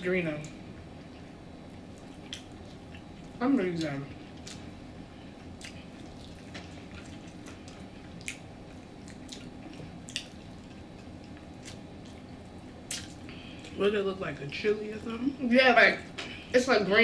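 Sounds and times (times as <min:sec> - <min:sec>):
person chewing food: 0:01.2 - 0:13.8
wet mouth clicks and smacks: 0:12.9 - 0:13.2.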